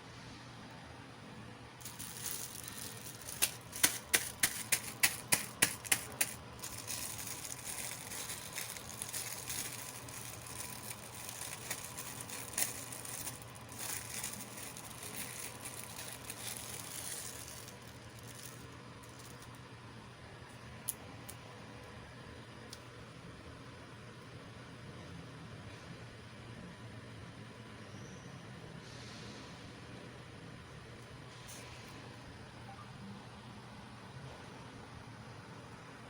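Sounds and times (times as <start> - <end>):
sharp toy clicks: 1.8 - 19.5
packaging rustling and crinkling: 1.8 - 19.6.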